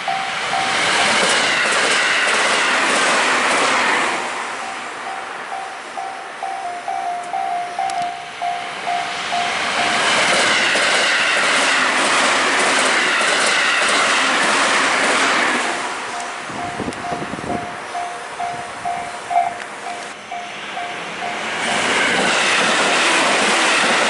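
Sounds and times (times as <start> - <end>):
train wheels clattering: 0.5 - 4.0, 9.3 - 15.7, 20.8 - 24.0
level crossing bell ringing: 4.6 - 10.0, 16.1 - 21.4.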